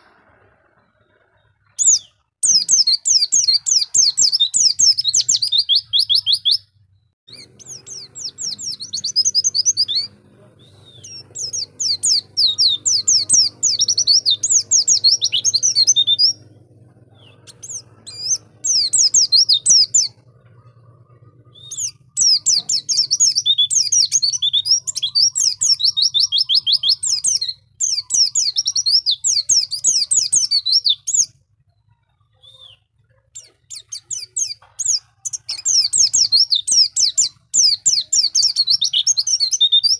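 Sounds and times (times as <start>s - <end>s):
bird twittering song: 0.0s - 39.9s
faint low hum: 6.6s - 28.5s.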